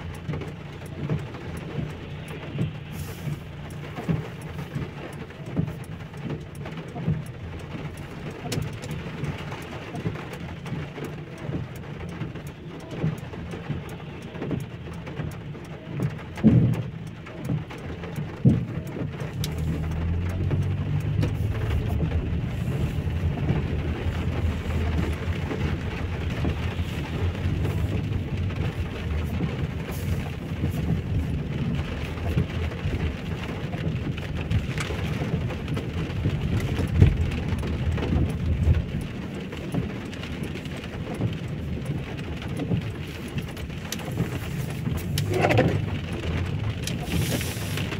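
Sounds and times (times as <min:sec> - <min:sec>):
heavy rain falling: 0:00.0 - 0:47.9
raindrop taps: 0:00.0 - 0:47.9
low rumble: 0:19.1 - 0:39.6.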